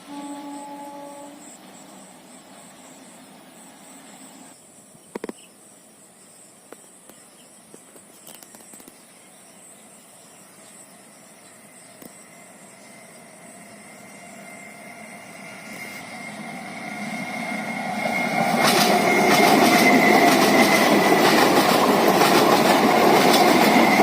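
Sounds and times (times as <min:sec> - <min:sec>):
background hiss: 0:00.0 - 0:18.4
insects trilling: 0:00.0 - 0:24.0.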